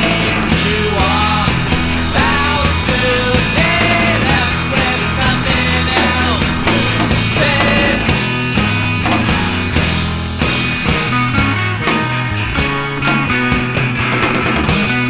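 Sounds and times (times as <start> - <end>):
bass notes: 0.0 - 15.0
drums: 0.0 - 15.0
rock band playing: 0.0 - 15.0
sliding melody line: 0.5 - 10.0.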